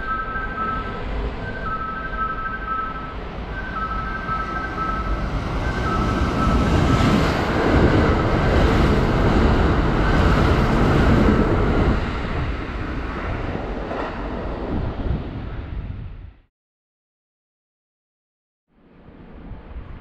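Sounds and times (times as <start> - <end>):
two-tone electronic warning signal: 0.0 - 7.2
electric train passing: 0.0 - 16.0.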